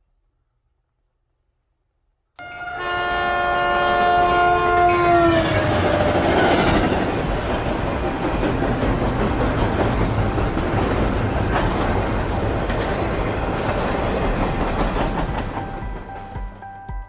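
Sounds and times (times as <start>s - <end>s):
train horn: 2.4s - 8.2s
train rumbling on rails: 2.8s - 16.8s.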